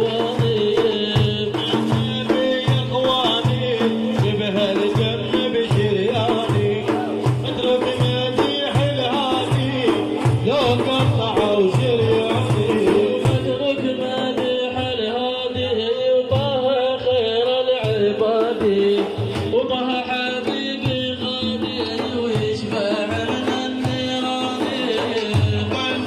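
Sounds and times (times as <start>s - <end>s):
hand drums beating: 0.0s - 26.0s.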